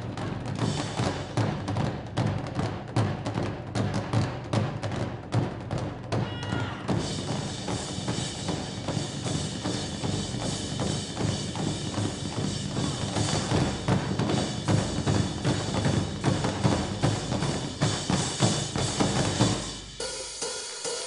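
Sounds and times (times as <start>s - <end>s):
cymbals: 0.0s - 2.0s, 6.1s - 21.0s
drum ensemble playing: 0.0s - 21.0s.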